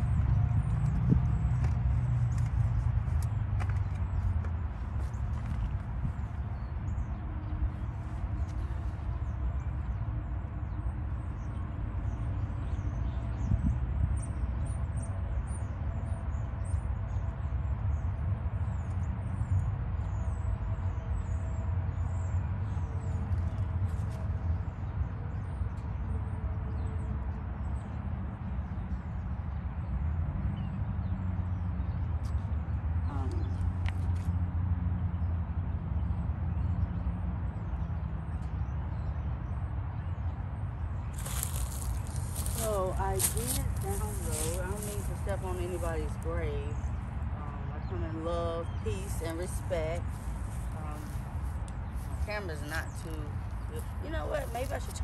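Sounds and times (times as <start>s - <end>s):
steady low rumble: 0.0s - 16.4s, 40.2s - 55.0s
small birds chirping: 28.6s - 34.4s, 36.0s - 55.0s.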